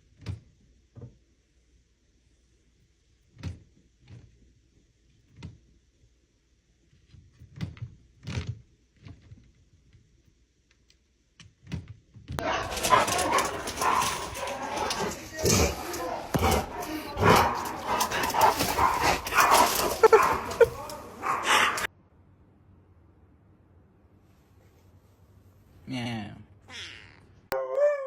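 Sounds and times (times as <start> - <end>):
dog barking loudly: 12.4 - 21.9.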